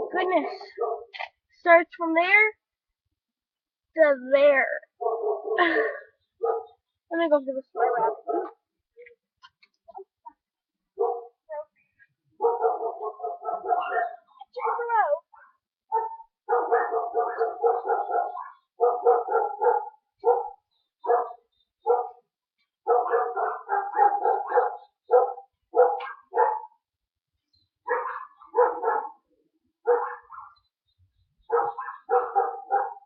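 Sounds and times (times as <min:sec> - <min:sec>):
dog barking: 0:00.7 - 0:01.2, 0:05.0 - 0:05.8, 0:06.4 - 0:06.8, 0:07.8 - 0:08.6, 0:11.0 - 0:11.4, 0:12.4 - 0:15.1, 0:15.9 - 0:22.2, 0:22.8 - 0:26.8, 0:27.8 - 0:30.7, 0:31.5 - 0:33.0.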